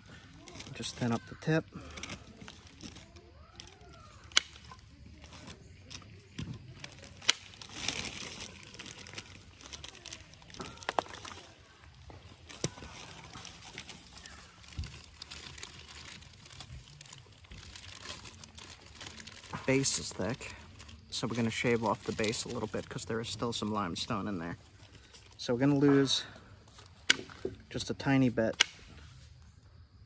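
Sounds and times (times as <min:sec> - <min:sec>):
stone flakes snapping with clicks: 0:01.9 - 0:08.8.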